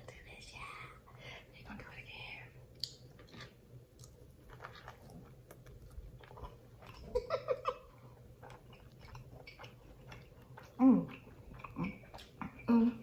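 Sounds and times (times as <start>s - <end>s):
chewing sausage: 2.8s - 13.0s.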